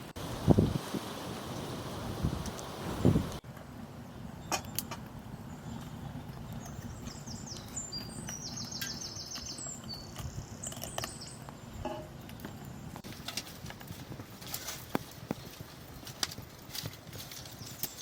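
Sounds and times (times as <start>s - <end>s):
small bird singing: 5.4s - 11.8s.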